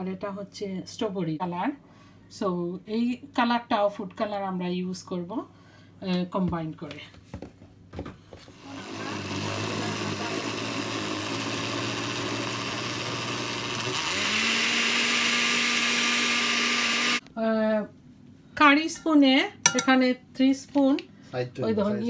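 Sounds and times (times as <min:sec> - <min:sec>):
blender motor grinding: 0:08.5 - 0:17.3.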